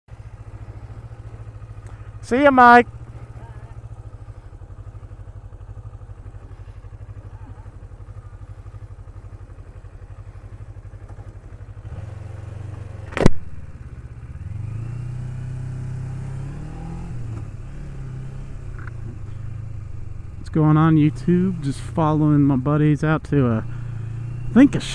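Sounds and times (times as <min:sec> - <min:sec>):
motorcycle engine idling and revving: 0:00.0 - 0:24.9
sharp click: 0:13.0 - 0:13.5.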